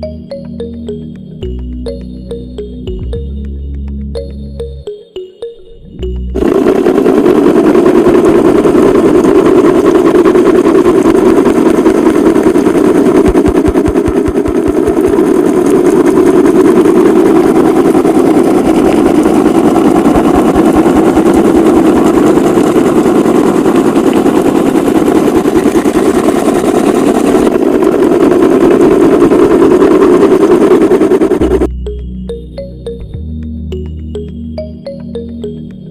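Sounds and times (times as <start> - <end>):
small motor buzzing rattle: 6.4 - 31.7.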